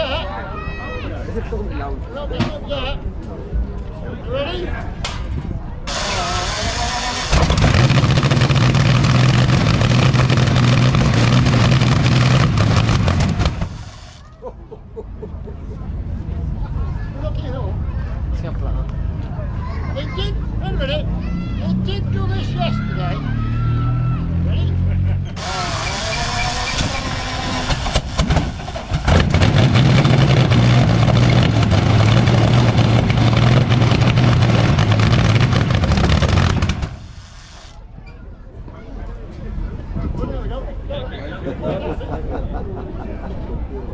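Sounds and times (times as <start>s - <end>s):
engine starting and running: 5.9s - 14.2s, 25.3s - 37.8s.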